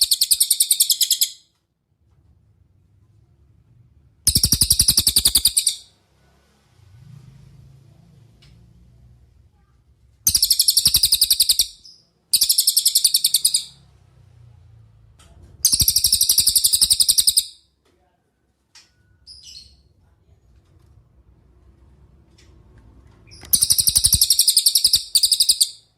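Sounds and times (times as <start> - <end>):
songbird trills: 0.0 - 1.5, 4.3 - 5.9, 10.3 - 13.8, 15.6 - 17.6, 23.3 - 25.9.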